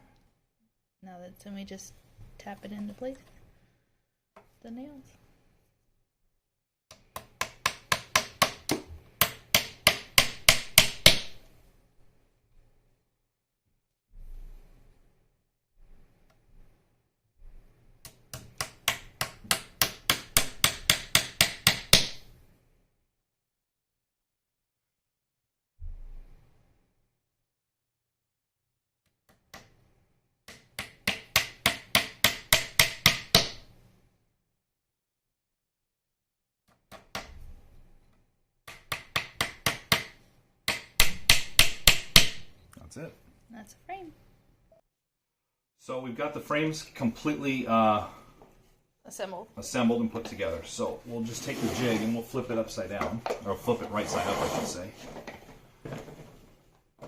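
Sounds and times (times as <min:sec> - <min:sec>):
hammer tapping nails into wood: 0:06.9 - 0:11.4, 0:18.0 - 0:22.3, 0:30.5 - 0:33.7, 0:38.7 - 0:42.5.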